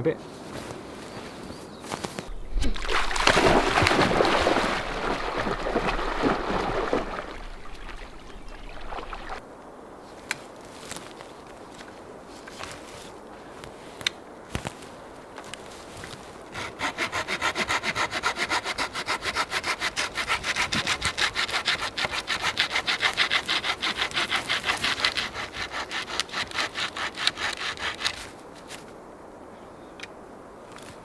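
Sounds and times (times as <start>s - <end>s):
hand saw cutting wood: 16.5s - 28.4s.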